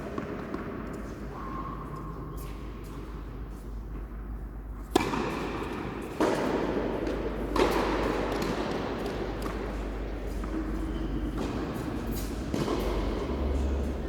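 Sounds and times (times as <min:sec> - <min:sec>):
tennis ball strikes: 0:04.9 - 0:13.9
echo: 0:05.2 - 0:14.0.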